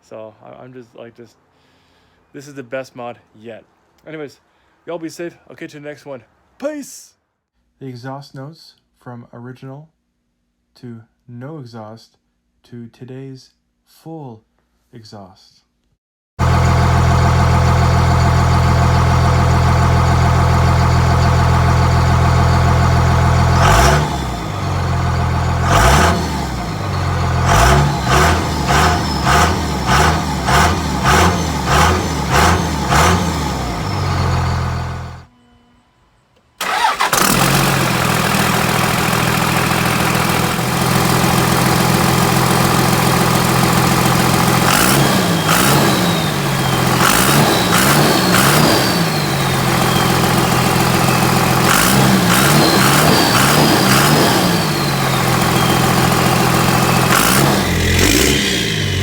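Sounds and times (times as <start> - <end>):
diesel truck engine idling and revving: 16.4 - 35.3, 36.6 - 59.0.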